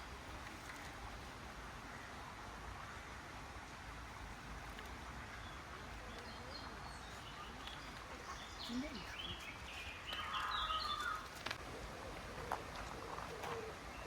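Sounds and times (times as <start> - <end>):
outdoor background noise: 0.0 - 14.0
birds chirping and calling: 6.2 - 11.4.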